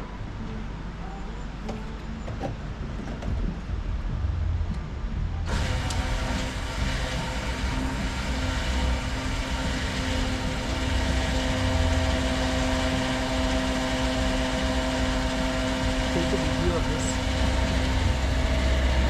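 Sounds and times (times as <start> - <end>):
petrol pump humming: 0.0 - 19.0
fuel flowing hiss: 5.5 - 19.0.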